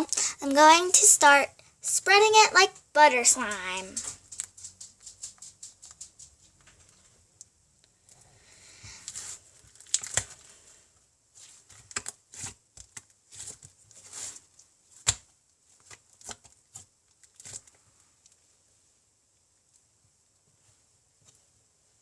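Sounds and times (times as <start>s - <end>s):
sticky slime crackling and popping: 9.0s - 10.6s, 11.4s - 17.8s.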